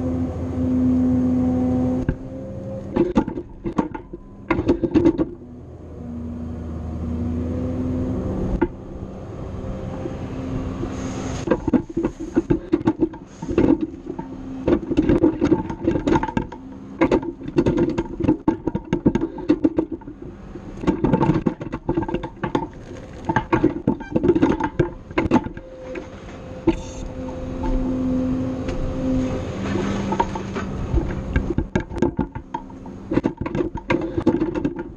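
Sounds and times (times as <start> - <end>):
loader grapple knocking and clattering: 2.8 - 5.4, 9.9 - 28.0, 28.6 - 34.9.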